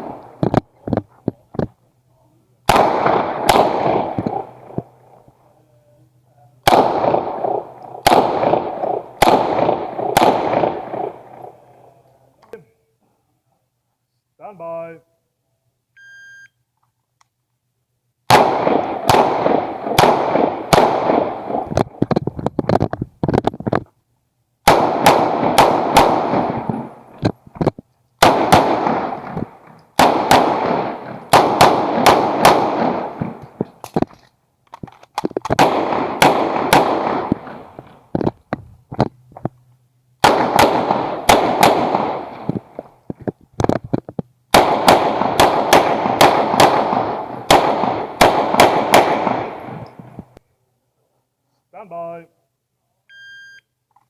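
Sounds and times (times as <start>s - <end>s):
rapid gunshots echoing: 2.7s - 4.8s, 6.7s - 11.6s, 18.3s - 22.0s, 24.7s - 27.2s, 28.2s - 33.6s, 35.6s - 38.0s, 40.2s - 42.9s, 44.5s - 49.9s
shot timer beep: 16.0s - 16.6s, 53.1s - 53.7s.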